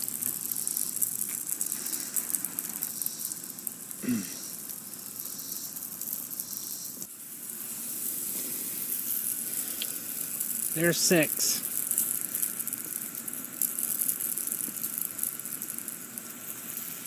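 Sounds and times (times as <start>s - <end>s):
sprinkler spraying water hiss: 0.0s - 17.0s.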